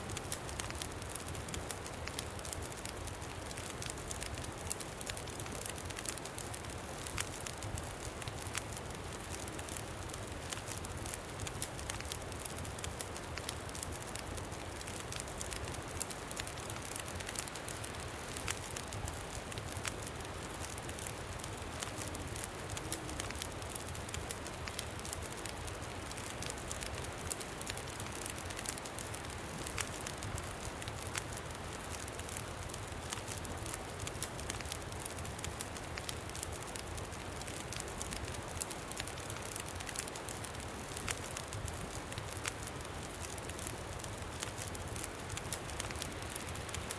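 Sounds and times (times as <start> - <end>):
campfire crackling and popping: 0.0 - 46.9.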